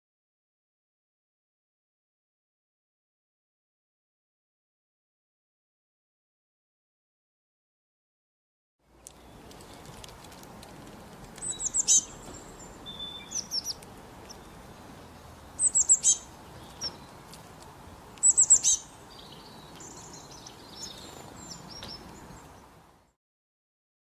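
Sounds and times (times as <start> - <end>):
songbird chirps: 8.8 - 23.2
soft bird twittering: 11.4 - 17.3, 18.2 - 22.7.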